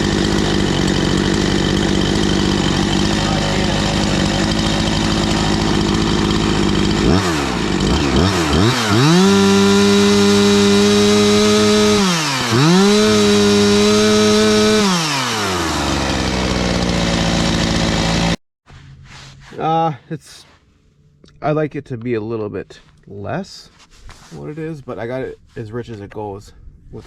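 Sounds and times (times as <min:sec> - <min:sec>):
chainsaw engine revving: 0:00.0 - 0:18.4.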